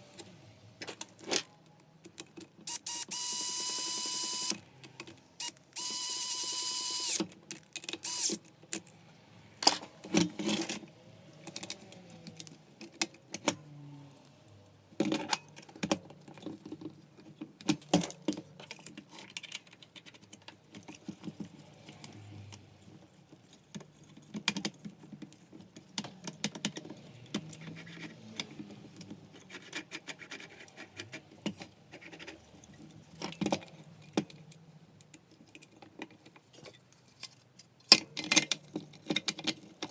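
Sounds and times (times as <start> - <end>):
small parts and tools clattering: 0.8 - 9.0, 9.6 - 13.6, 14.2 - 39.9.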